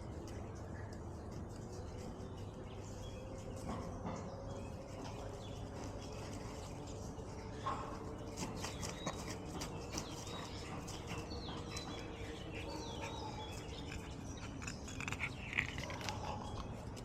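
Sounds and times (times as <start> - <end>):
low outdoor background: 0.0 - 17.0
small birds chirping: 0.0 - 17.0.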